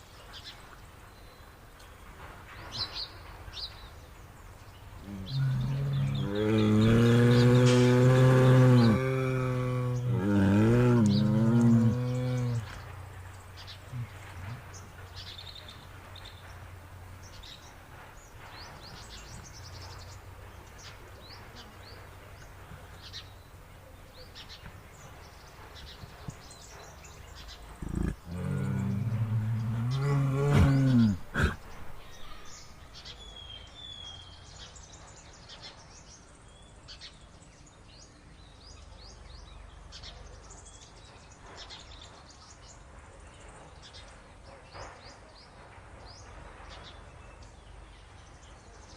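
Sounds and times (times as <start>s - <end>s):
small birds chirping: 0.0s - 48.9s
bear growling: 5.0s - 13.2s, 13.8s - 15.1s, 27.7s - 32.6s.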